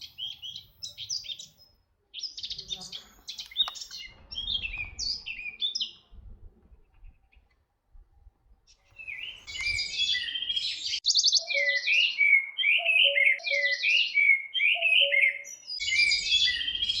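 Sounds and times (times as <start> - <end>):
songbird chirping and trilling: 0.0 - 7.6, 8.7 - 17.0
lower soft paired bird notes: 15.8 - 17.0.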